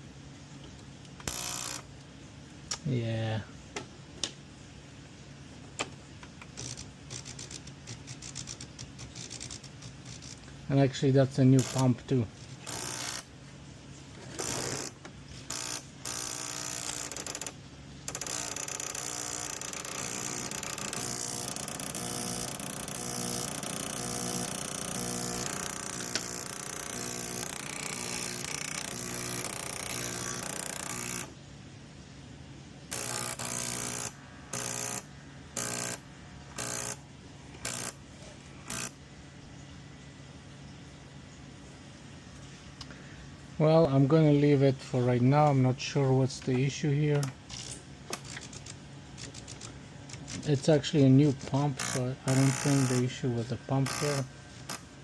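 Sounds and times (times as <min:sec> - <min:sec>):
espresso machine pump buzzing: 0:01.2 - 0:01.9, 0:06.5 - 0:10.4, 0:11.4 - 0:13.3, 0:14.2 - 0:31.4, 0:32.9 - 0:39.0, 0:48.2 - 0:55.0.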